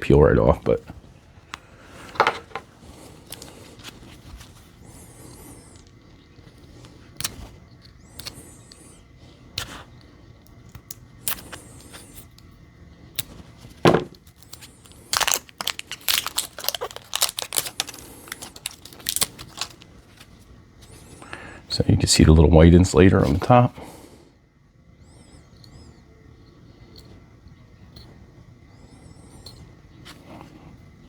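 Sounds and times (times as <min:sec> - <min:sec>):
plastic wrap crackling and peeling: 0:13.2 - 0:21.1.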